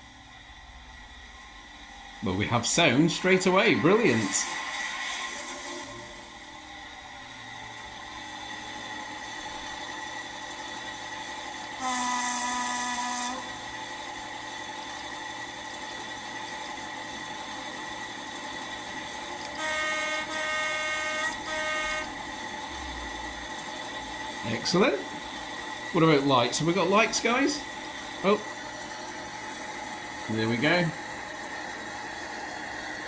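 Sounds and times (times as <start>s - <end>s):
model train engine idling hum: 0.0s - 33.0s
train horn blasts: 11.8s - 13.8s, 19.4s - 23.2s.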